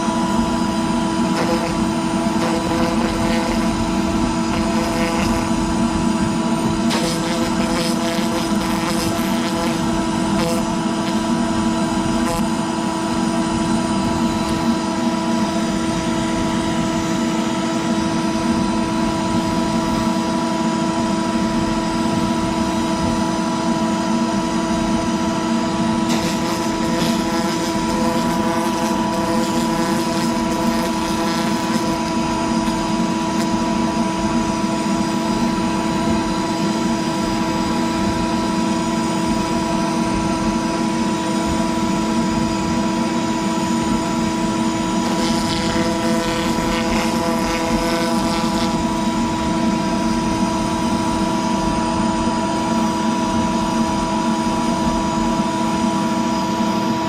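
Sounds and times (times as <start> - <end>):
router spindle whine: 0.0 - 57.0
bit cutting plastic: 1.2 - 5.6, 6.8 - 11.3, 12.2 - 12.5, 26.1 - 33.6, 45.0 - 48.8.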